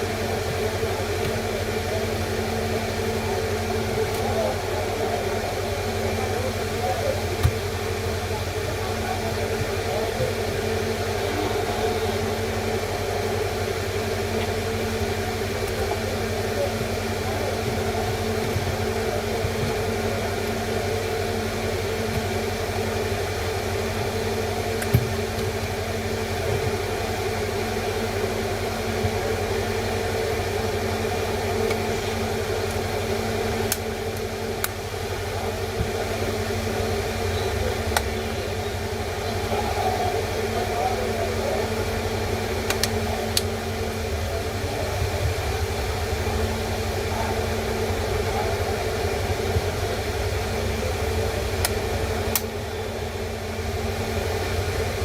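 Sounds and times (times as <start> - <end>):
mechanical hum with hiss: 0.0 - 55.0.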